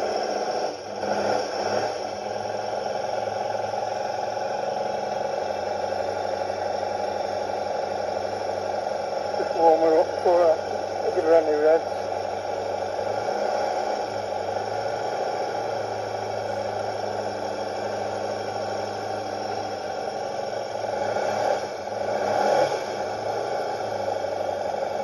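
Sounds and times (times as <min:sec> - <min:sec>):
motorcycle engine idling: 0:02.0 - 0:13.2, 0:14.0 - 0:21.0.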